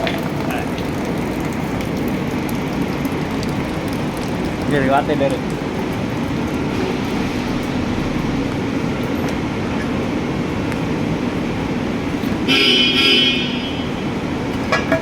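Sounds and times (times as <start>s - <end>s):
traffic rumble: 0.0s - 15.0s
vehicle horn: 12.4s - 14.1s.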